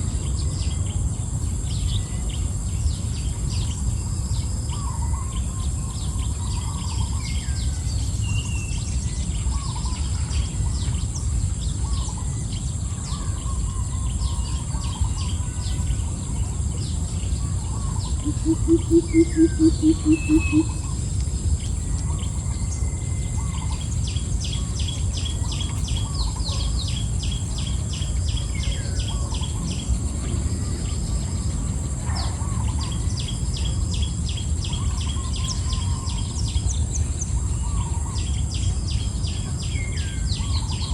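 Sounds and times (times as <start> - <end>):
birds chirping and calling: 4.7 - 40.9
high-pitched insect drone: 17.6 - 21.0
low hooting pulses: 18.2 - 21.0.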